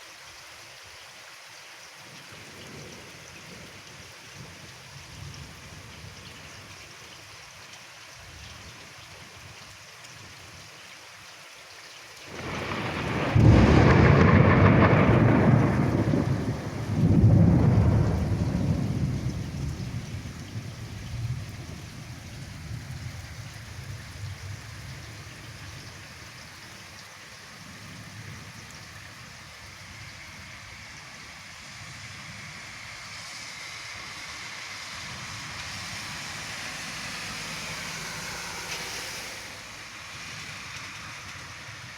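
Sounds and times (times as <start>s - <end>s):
steady rain: 0.0s - 41.9s
thunder rumbling: 12.3s - 23.1s.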